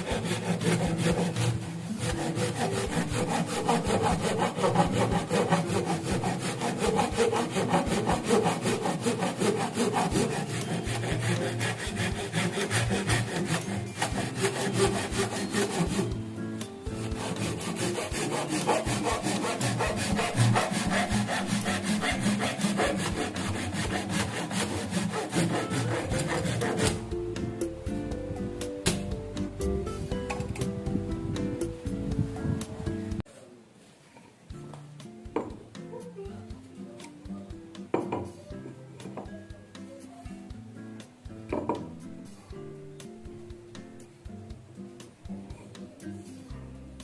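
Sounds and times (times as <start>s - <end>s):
saw cutting wood: 0.0s - 16.2s, 17.0s - 27.2s.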